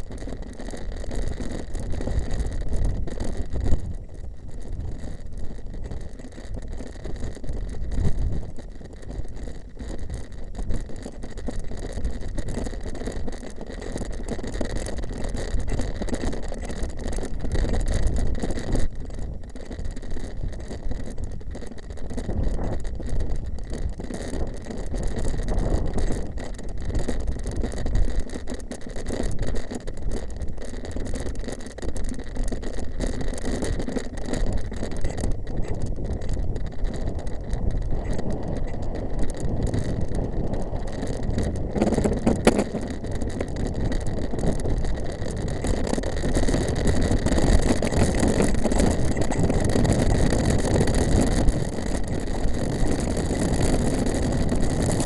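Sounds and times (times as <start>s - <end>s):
bike tyre noise: 0.0s - 55.0s
bike rattling and knocking: 33.4s - 52.0s
wind buffeting microphone: 34.5s - 55.0s.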